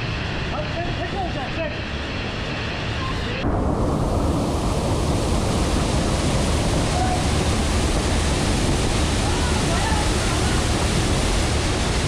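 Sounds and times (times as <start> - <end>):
waterfall rushing: 3.4 - 12.0.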